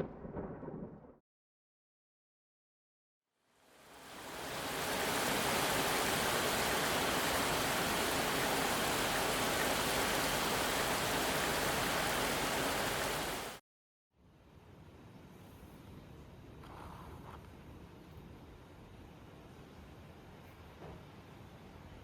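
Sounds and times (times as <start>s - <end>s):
heavy falling water rushing: 3.8s - 13.6s.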